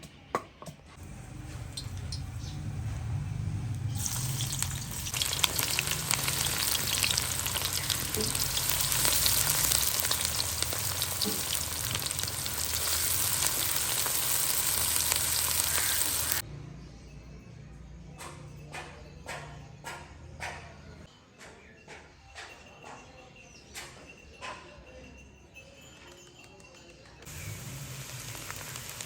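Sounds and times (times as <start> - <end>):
food sizzling and popping: 1.0 - 2.9, 3.7 - 16.4, 27.2 - 29.0.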